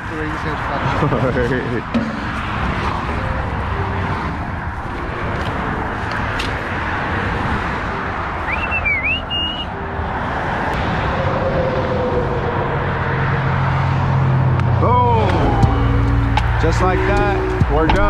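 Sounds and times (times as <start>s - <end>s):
highway traffic roar: 0.0s - 18.0s
high wavering chirp: 8.4s - 10.1s.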